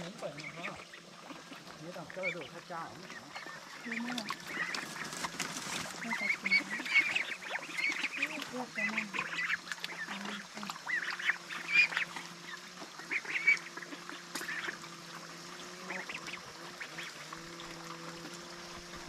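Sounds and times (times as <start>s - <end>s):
ducks calling: 0.0s - 19.0s.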